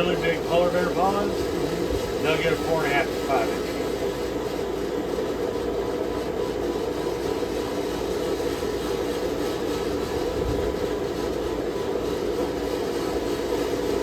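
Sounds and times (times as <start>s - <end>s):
forge rushing noise: 0.0s - 4.1s.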